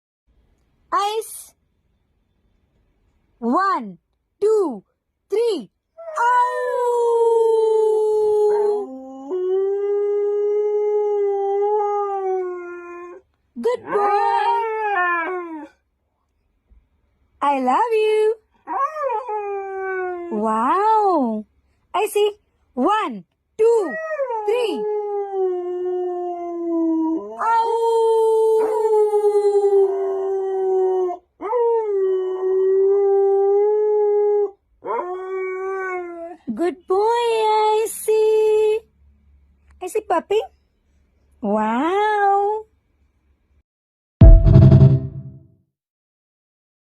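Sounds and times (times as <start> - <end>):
husky howling: 13.8 - 15.8.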